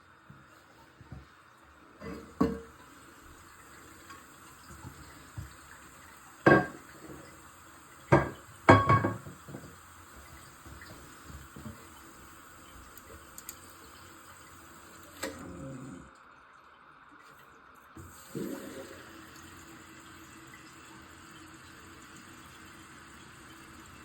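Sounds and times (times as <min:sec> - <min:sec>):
hard objects knocking and clunking: 0:08.1 - 0:09.8.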